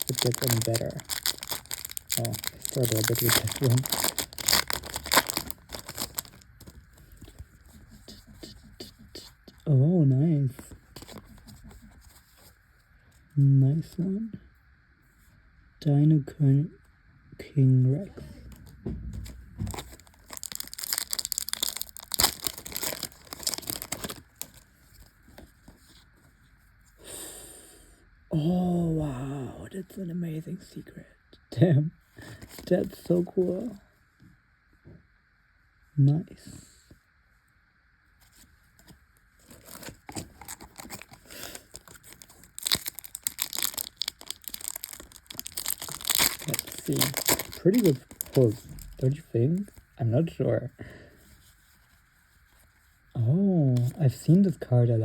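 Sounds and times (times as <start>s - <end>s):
foil wrapper crinkling and tearing: 0.0s - 7.2s, 19.6s - 25.1s, 39.4s - 49.9s.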